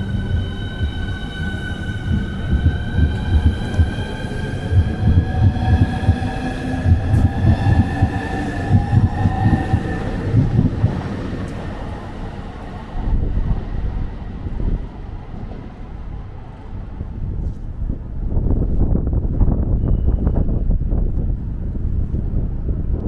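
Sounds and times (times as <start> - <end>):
electric train whine: 0.0 - 18.4
train rumbling: 0.0 - 23.0.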